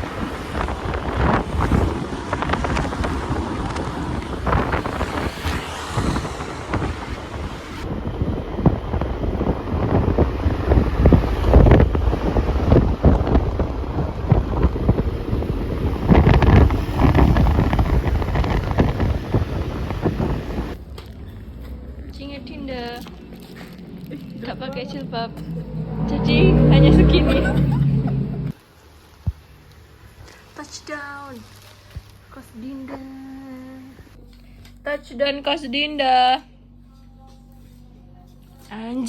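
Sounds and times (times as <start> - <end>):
wind buffeting microphone: 0.0 - 20.8, 21.9 - 28.6
moving vehicle rumble: 0.0 - 28.6.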